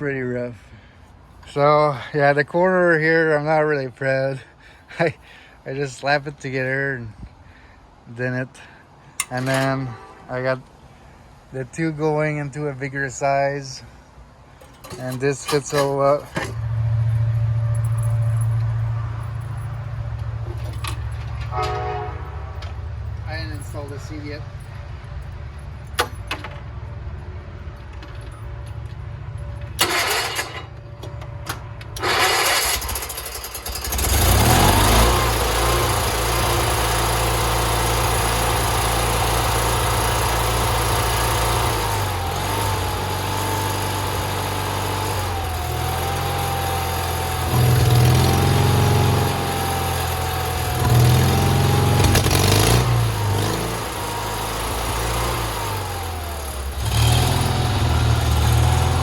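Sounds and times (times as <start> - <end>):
engine cranking: 9.2 - 10.0, 14.6 - 18.7, 29.5 - 59.0
tractor engine running: 14.6 - 59.0.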